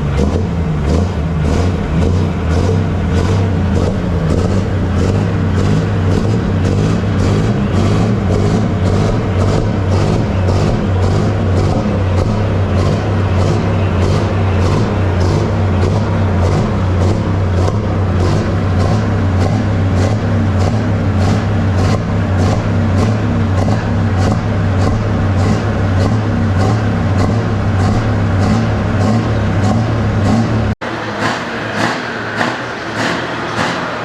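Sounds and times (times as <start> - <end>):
tractor engine at high revs: 0.0 - 34.0.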